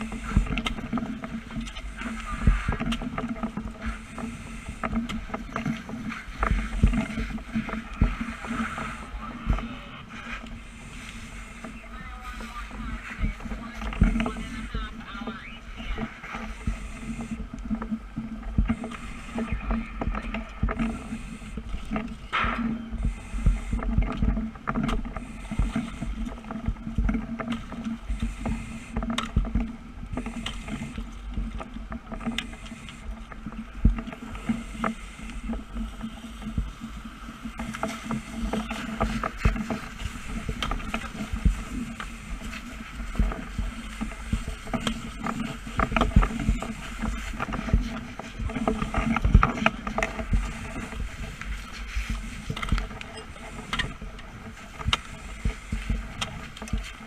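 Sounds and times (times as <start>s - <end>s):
crackles and knocks: 0.0s - 57.0s
engine drone: 0.0s - 57.0s.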